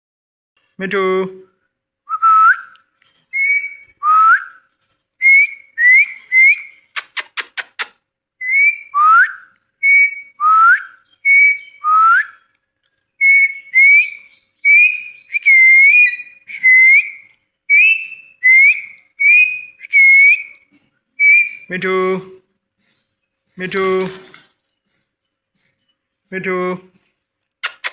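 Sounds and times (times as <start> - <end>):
parrot whistling shrill notes: 3.3 - 4.6, 8.4 - 12.4, 13.2 - 20.6, 21.2 - 21.7
sharp clicks: 6.7 - 8.0, 27.4 - 27.9.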